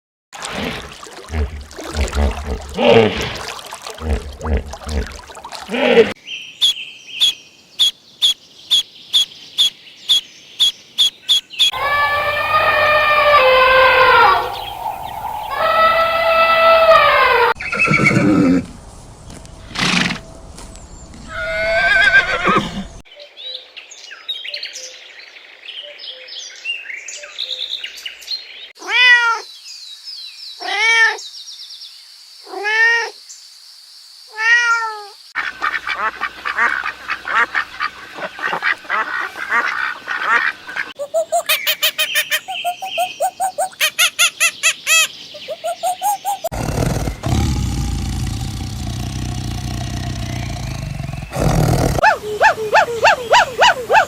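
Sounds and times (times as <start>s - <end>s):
animal and bird calls: 5.7s - 18.7s, 34.4s - 54.0s
arched calls: 6.6s - 18.3s, 35.4s - 54.0s
rapid chattering calls: 35.4s - 54.0s.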